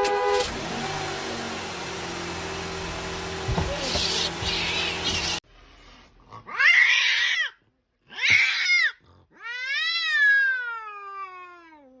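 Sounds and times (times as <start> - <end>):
cat yowling: 6.5 - 12.0.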